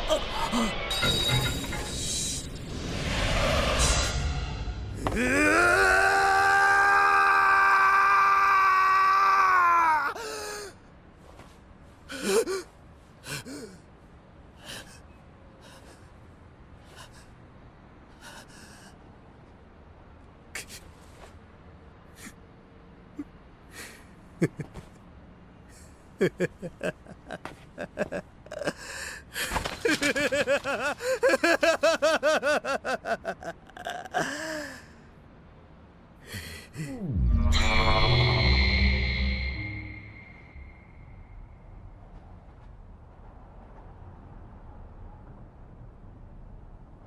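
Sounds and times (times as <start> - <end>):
brief rush of noise: 2.6 - 5.0
person gasping: 36.2 - 37.1.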